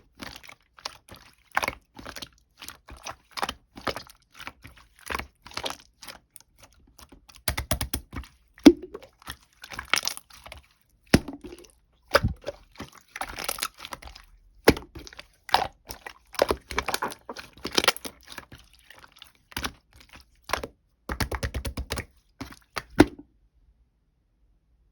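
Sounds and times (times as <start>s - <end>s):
crunching and cracking: 9.0s - 19.8s.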